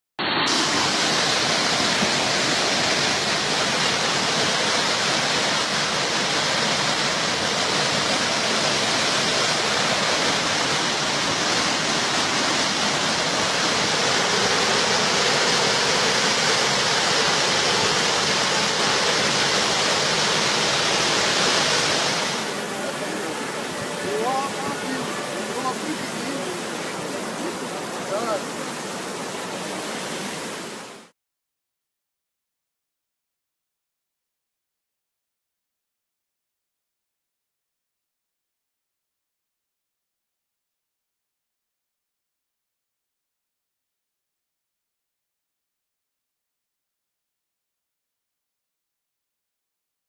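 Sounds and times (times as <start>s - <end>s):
floodwater rushing: 0.2s - 31.1s.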